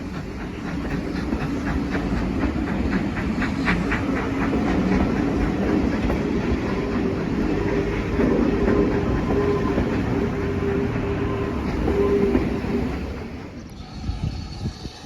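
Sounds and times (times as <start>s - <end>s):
train clattering on track: 0.0s - 14.1s.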